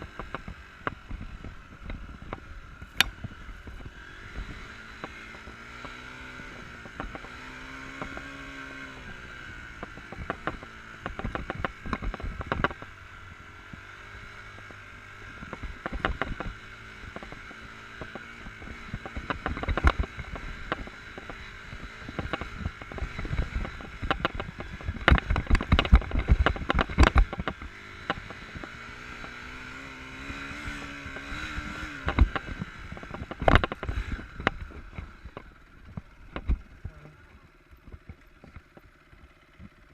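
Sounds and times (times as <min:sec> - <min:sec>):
motorcycle engine revving: 0:00.0 - 0:39.9
sharp knocks and clatter: 0:09.8 - 0:12.9, 0:15.4 - 0:37.0.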